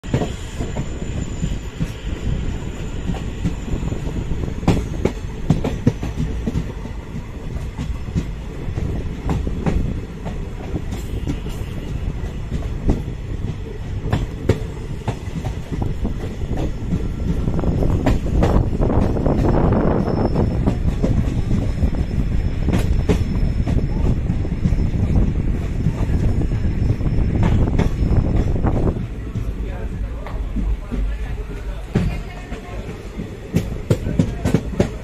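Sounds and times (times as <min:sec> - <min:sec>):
train wheels rumbling on rails: 0:00.0 - 0:35.0
clickety-clack clicks: 0:04.6 - 0:19.6, 0:22.6 - 0:25.2, 0:27.4 - 0:31.3, 0:31.9 - 0:35.0.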